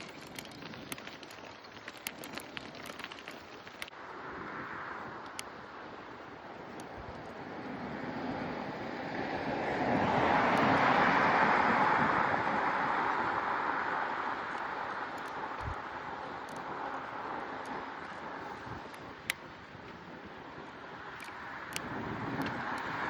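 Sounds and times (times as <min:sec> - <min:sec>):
wind noise: 0:00.0 - 0:23.0
vehicle passing: 0:07.5 - 0:18.6.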